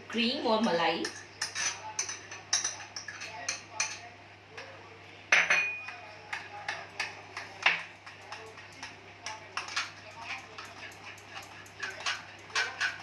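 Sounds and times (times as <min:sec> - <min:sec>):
spoon clinking against bowl: 0:00.6 - 0:04.1, 0:05.3 - 0:13.0.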